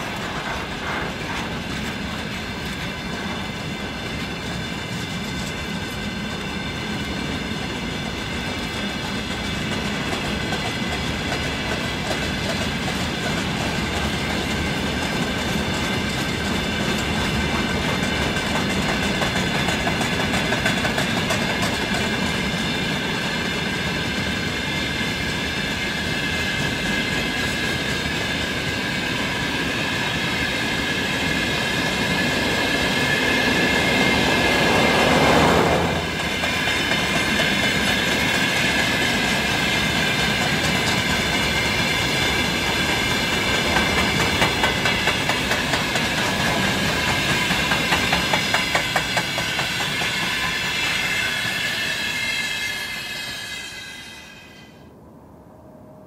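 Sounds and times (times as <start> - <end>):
wheels clattering over rail joints: 30.0 - 52.4
high-pitched wheel squeal: 49.8 - 55.0.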